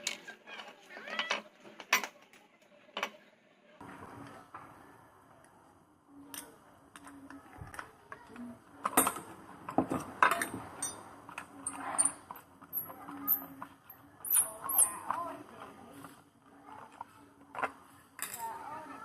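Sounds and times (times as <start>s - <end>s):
metal tools clicking and tapping: 6.3s - 15.2s.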